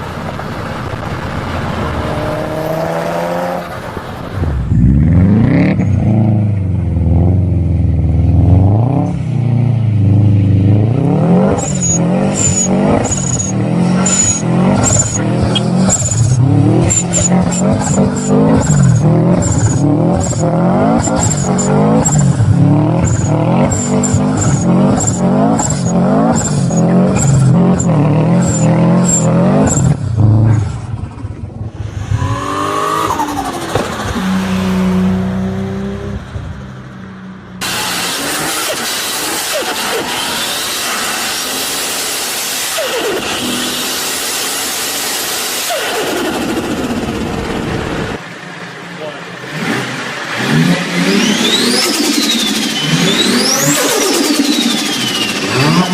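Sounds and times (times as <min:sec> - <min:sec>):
car engine revving in blips: 0:00.0 - 0:48.2, 0:49.3 - 0:55.9
turbo whistle: 0:11.6 - 0:18.3, 0:51.2 - 0:55.9.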